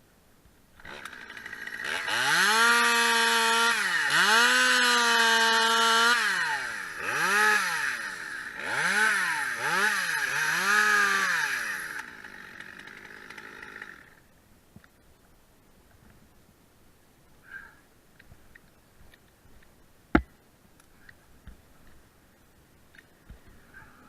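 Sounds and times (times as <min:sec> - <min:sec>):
chainsaw revving: 0:00.8 - 0:14.3.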